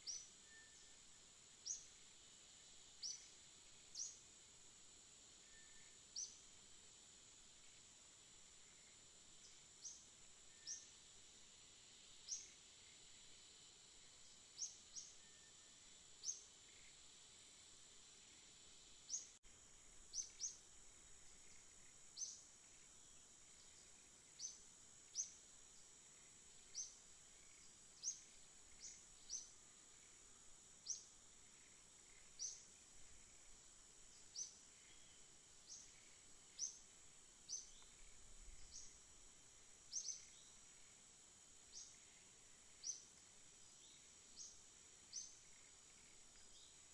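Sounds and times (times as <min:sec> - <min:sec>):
small bird chirping: 0:00.0 - 0:01.0, 0:01.6 - 0:01.9, 0:03.0 - 0:04.3, 0:05.5 - 0:06.4, 0:08.7 - 0:10.9, 0:12.2 - 0:13.0, 0:14.2 - 0:17.0, 0:19.0 - 0:19.4, 0:20.1 - 0:22.9, 0:23.5 - 0:25.9, 0:26.6 - 0:30.2, 0:30.8 - 0:39.0, 0:39.9 - 0:40.6, 0:41.7 - 0:42.2, 0:42.8 - 0:43.2, 0:43.8 - 0:46.9
high insect drone: 0:00.0 - 0:46.9.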